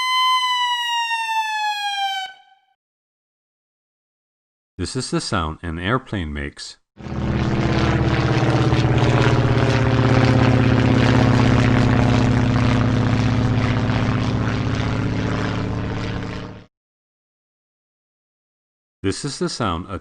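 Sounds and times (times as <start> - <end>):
airplane engine droning: 7.0 - 16.7.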